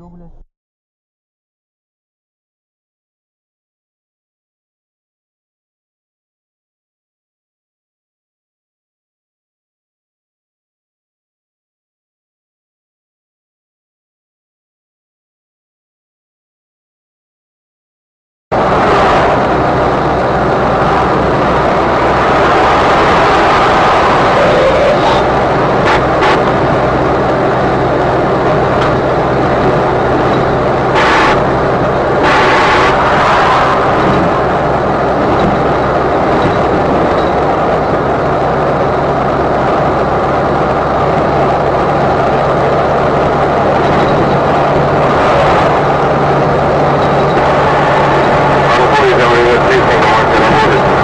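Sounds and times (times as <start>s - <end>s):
car road and engine noise: 0.0s - 0.5s, 18.5s - 51.0s
low hum: 0.0s - 0.5s, 18.6s - 51.0s
rushes of noise: 18.6s - 51.0s.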